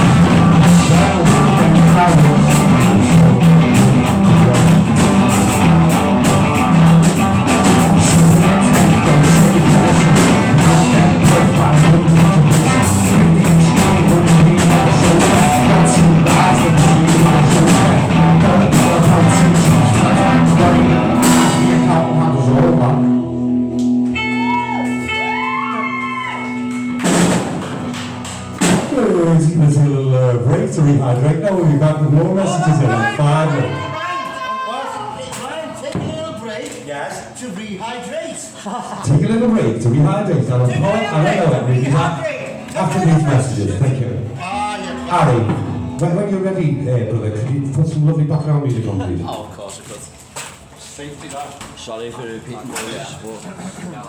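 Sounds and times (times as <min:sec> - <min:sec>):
person singing: 0:00.0 - 0:27.0
drum kit: 0:00.0 - 0:29.9, 0:44.9 - 0:46.2
guitar: 0:00.0 - 0:37.4, 0:38.5 - 0:54.0.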